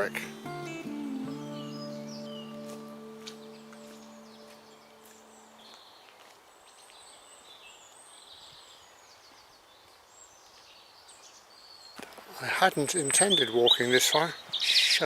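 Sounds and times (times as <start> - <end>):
held musical tone: 0.0 - 5.6
bird chirps and trills: 0.0 - 6.0
outdoor background noise: 0.0 - 15.0.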